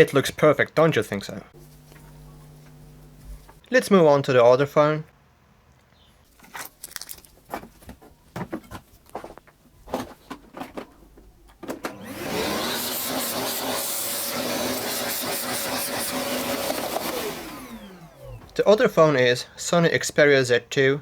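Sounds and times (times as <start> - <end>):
hot air blower hissing: 1.6 - 3.6, 11.6 - 19.0.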